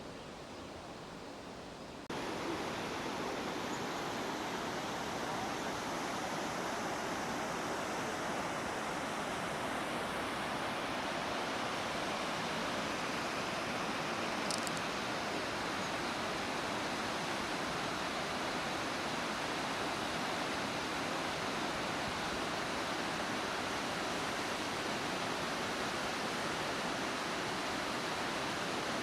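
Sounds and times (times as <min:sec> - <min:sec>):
rushing water: 0:02.1 - 0:29.0.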